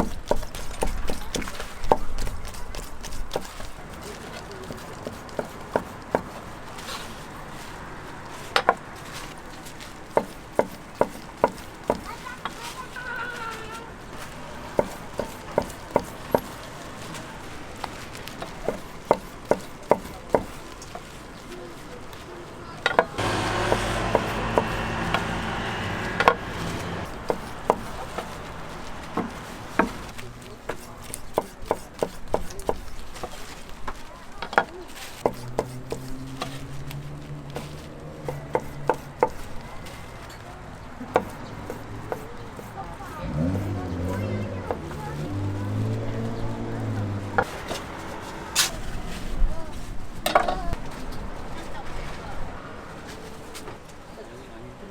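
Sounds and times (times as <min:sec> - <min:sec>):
knife chopping on cutting board: 0:00.0 - 0:03.7, 0:04.7 - 0:06.4, 0:10.1 - 0:12.1, 0:14.7 - 0:16.5, 0:18.7 - 0:20.5, 0:22.9 - 0:28.3, 0:30.7 - 0:33.4, 0:35.2 - 0:36.1, 0:38.2 - 0:39.5, 0:41.1 - 0:42.7.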